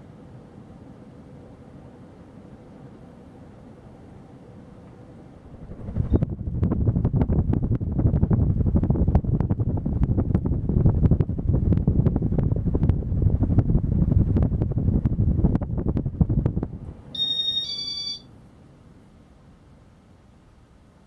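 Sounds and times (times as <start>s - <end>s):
ceiling fan air rush: 0.0s - 21.0s
short electronic beeps: 17.2s - 18.2s.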